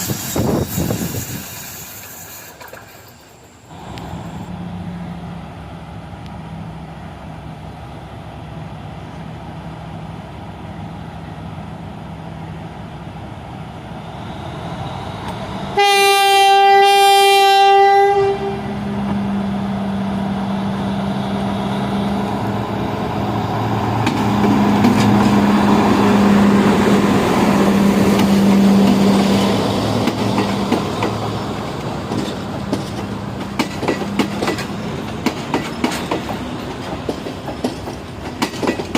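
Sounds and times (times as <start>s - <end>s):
diesel train engine running: 0.0s - 38.9s
train horn blast: 15.7s - 19.3s
wheels clicking over rail joints: 29.9s - 38.9s.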